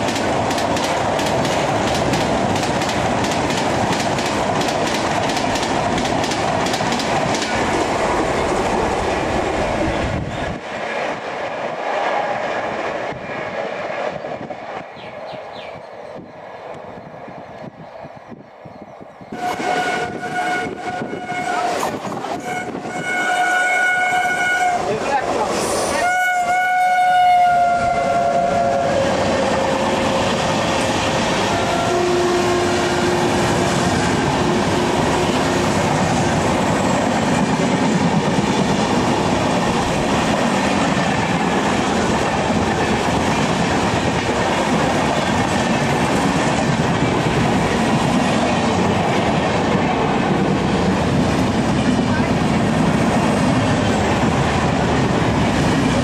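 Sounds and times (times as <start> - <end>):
train rumble and wheel clatter: 0.0 - 56.0
locomotive horn: 19.4 - 24.9, 25.9 - 30.1, 31.5 - 33.7.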